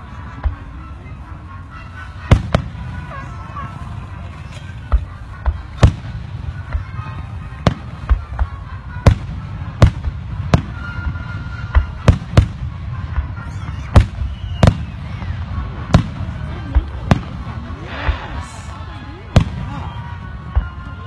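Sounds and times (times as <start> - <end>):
fireworks bursting with bangs: 1.8 - 21.0
steady low rumble: 15.0 - 20.9.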